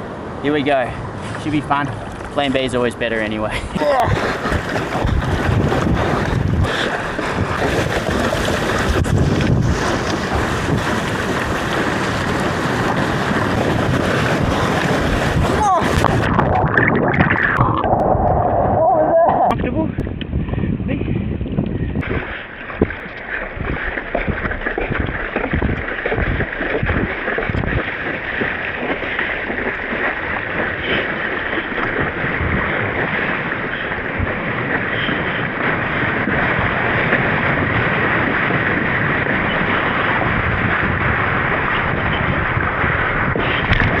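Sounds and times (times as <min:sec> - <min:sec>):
rushing water and surf: 0:00.0 - 0:19.6, 0:22.0 - 0:44.0
wind buffeting microphone: 0:00.0 - 0:44.0.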